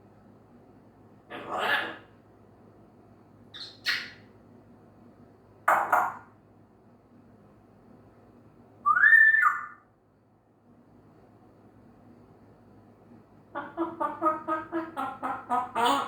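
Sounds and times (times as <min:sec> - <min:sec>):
parrot calling: 0:01.3 - 0:02.1, 0:03.6 - 0:04.2, 0:08.9 - 0:09.8, 0:13.5 - 0:16.0
parrot whistle: 0:08.8 - 0:09.8.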